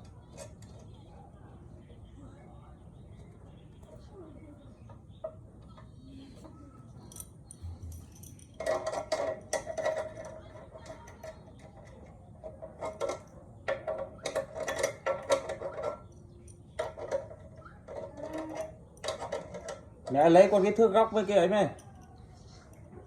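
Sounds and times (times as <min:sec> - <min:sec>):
metal parts clinking: 0:07.0 - 0:22.8.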